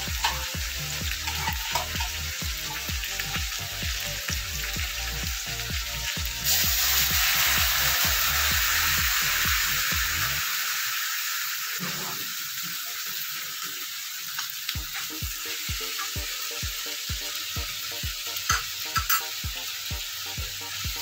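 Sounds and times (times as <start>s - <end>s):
music with steady beat: 0.0s - 10.4s, 14.8s - 21.0s
food sizzling in hot oil: 0.0s - 21.0s.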